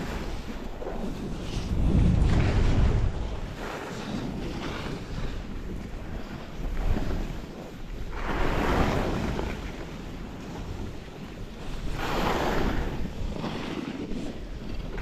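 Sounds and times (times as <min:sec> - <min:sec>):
wind buffeting microphone: 0:00.0 - 0:15.0
skis hissing across snow: 0:11.9 - 0:13.0.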